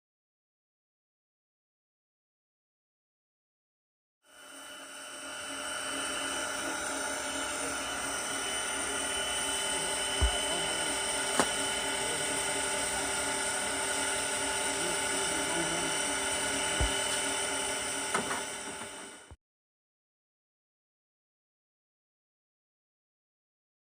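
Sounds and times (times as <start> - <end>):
drone motors whining: 4.3 - 19.4.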